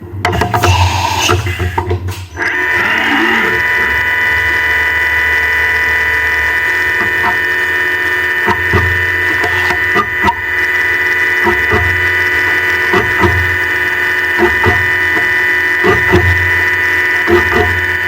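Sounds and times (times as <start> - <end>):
milling machine whine: 0.0 - 18.0.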